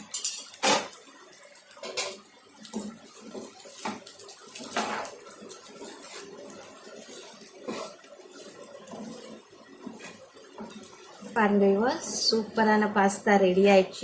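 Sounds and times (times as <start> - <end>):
spoon scraping a cooking pan: 1.7 - 11.4.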